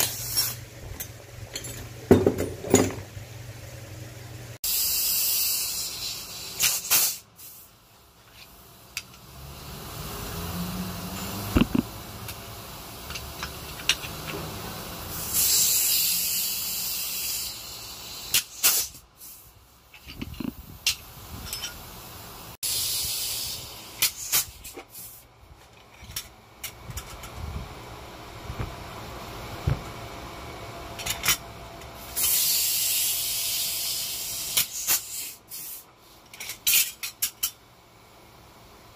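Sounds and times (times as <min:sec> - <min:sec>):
loud spraying hiss: 0:04.7 - 0:07.8, 0:15.0 - 0:19.5, 0:22.2 - 0:25.2, 0:32.1 - 0:35.9.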